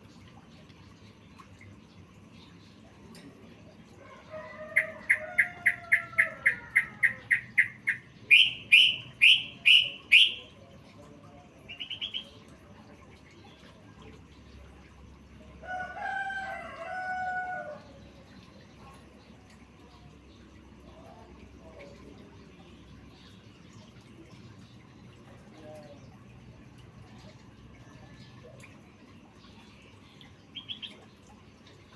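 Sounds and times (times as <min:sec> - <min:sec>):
songbird singing: 0:00.1 - 0:31.9.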